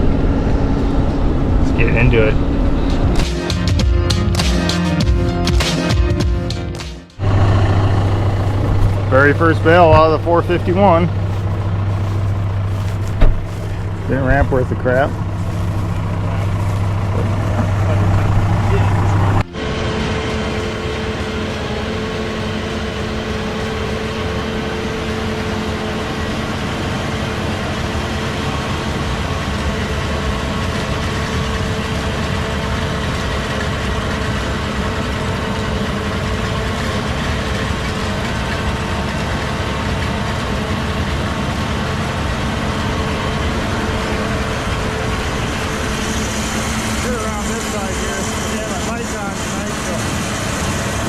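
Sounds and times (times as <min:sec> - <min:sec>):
engine humming steadily: 0:00.0 - 0:51.0.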